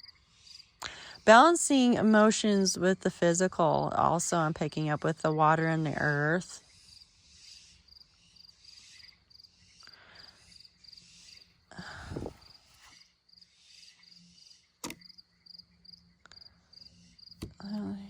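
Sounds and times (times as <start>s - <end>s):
faint cricket chirping: 6.6s - 18.0s
soft rustle: 11.2s - 13.1s
sharp click: 14.8s - 15.0s.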